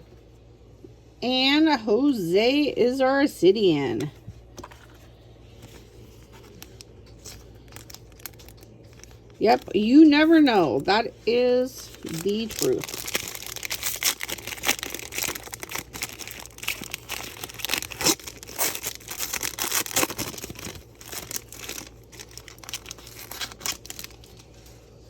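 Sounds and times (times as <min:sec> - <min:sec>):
wrappers tearing and crinkling: 0:05.7 - 0:10.9, 0:11.5 - 0:25.0.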